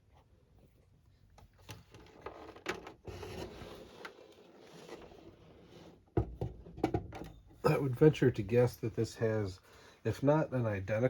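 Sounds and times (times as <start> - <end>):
fan handling clicks and knocks: 6.2 - 7.4.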